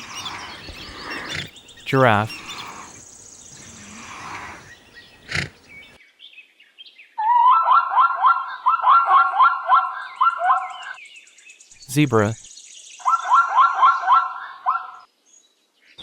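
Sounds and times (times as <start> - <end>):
high bird chirping: 0.0 - 3.9.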